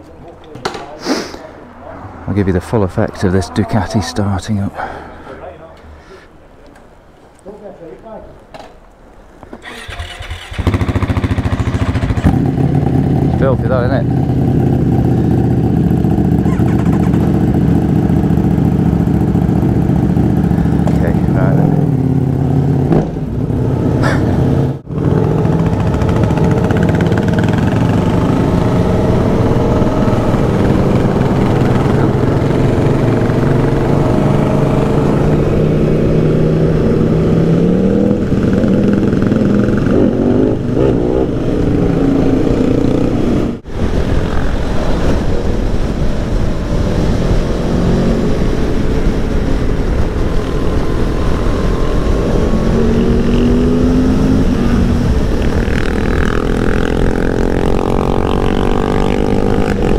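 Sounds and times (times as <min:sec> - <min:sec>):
motorcycle engine running: 0:09.7 - 0:23.8, 0:24.6 - 0:44.6
wind rush: 0:23.2 - 0:59.9.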